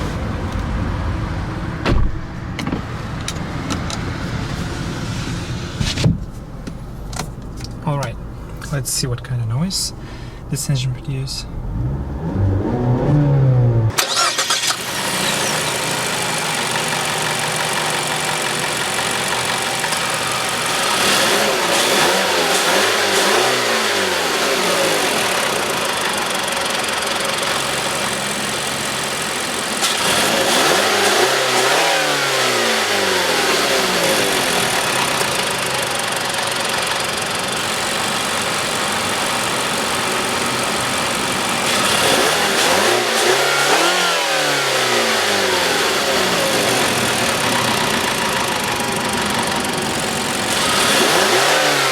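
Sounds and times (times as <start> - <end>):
car engine revving: 0.0 - 51.9.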